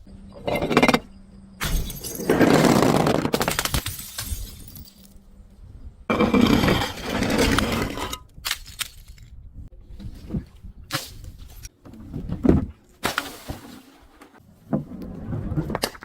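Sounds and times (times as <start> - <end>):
glass bottles crushing: 1.6 - 5.2
glass pieces clinking: 3.4 - 5.2.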